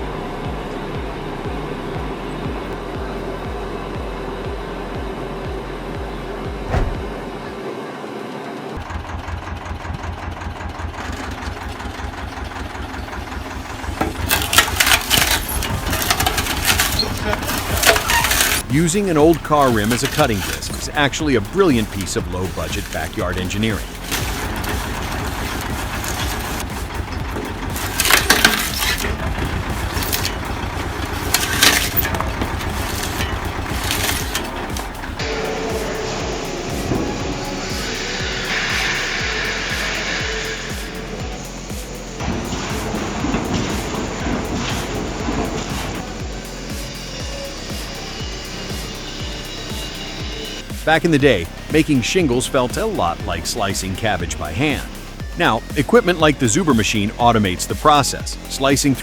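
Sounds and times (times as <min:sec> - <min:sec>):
engine running: 0:00.0 - 0:59.0
wood cracking and splintering: 0:14.1 - 0:21.0, 0:21.8 - 0:35.1
harsh rasping cutting strokes: 0:14.3 - 0:41.2.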